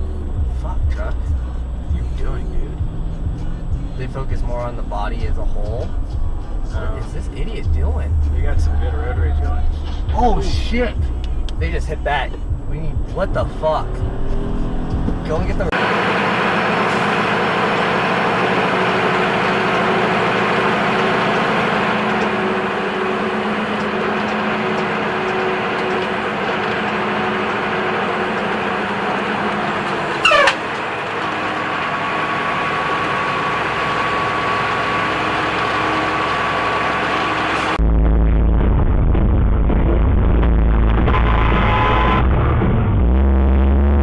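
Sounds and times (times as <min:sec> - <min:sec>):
vehicle engine and road noise: 0:00.0 - 0:44.0.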